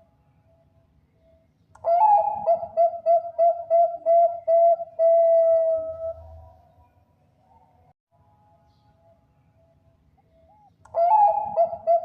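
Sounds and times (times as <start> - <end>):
dove cooing: 1.8 - 6.5, 10.3 - 12.0.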